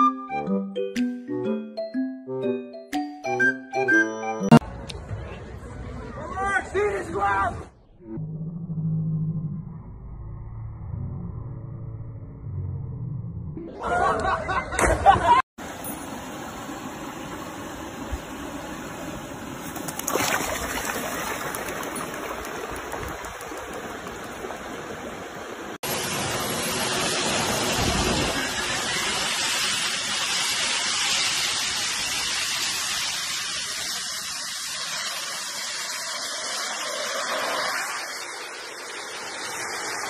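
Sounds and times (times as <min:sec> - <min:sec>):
jet turbine engines rushing: 0:15.6 - 0:20.0, 0:21.2 - 0:40.0
quieter steady rushing noise: 0:34.0 - 0:40.0.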